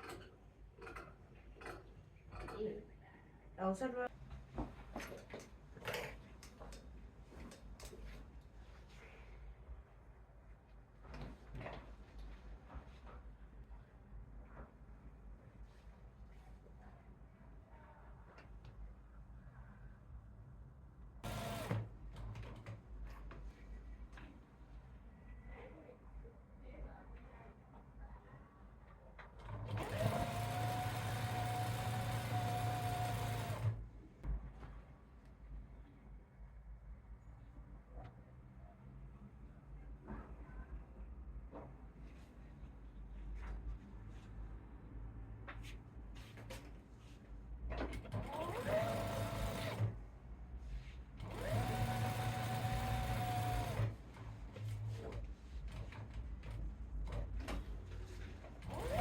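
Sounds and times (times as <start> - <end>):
electric sewing machine running: 21.2 - 21.9, 29.5 - 33.8, 48.2 - 49.9, 51.2 - 54.0, 58.6 - 59.0.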